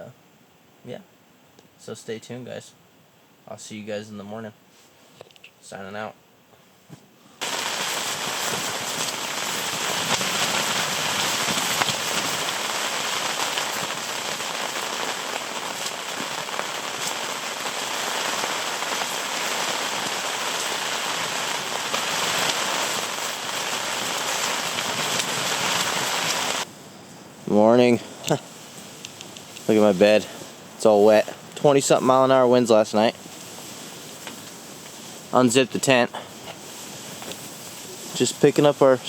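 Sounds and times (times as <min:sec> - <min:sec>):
heavy rain: 0:07.4 - 0:26.7.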